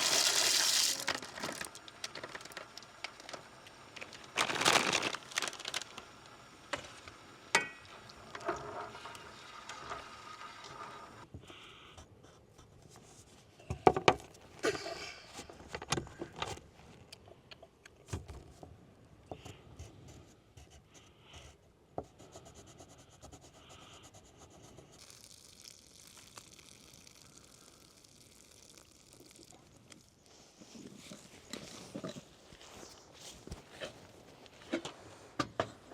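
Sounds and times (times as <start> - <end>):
camp cookware knocking and scraping: 7.6 - 9.2.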